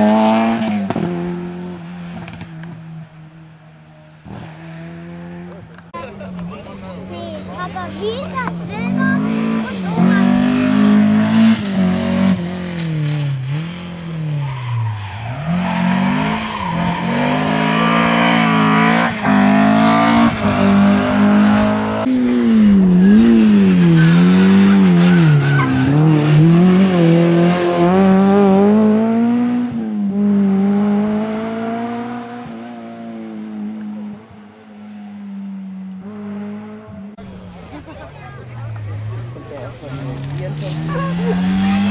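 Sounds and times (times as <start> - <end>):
car engine revving hard: 0.0 - 2.5, 7.8 - 34.4, 36.0 - 37.2, 38.8 - 41.9.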